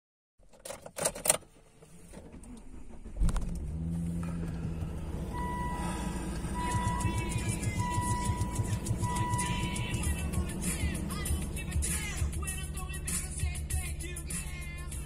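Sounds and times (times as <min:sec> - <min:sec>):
clicks and clatter in a car: 0:00.4 - 0:05.2
car engine starting and idling: 0:00.5 - 0:15.0
steady high beep: 0:05.4 - 0:10.1.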